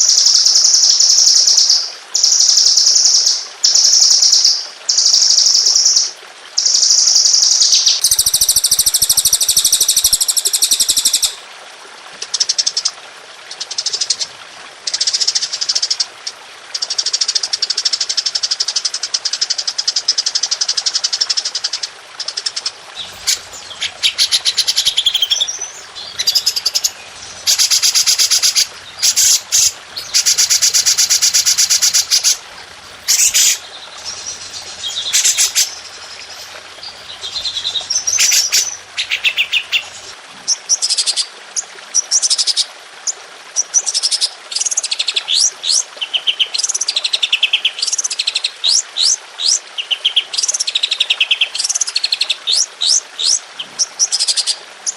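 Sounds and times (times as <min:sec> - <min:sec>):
songbird trills: 0:22.3 - 0:40.1.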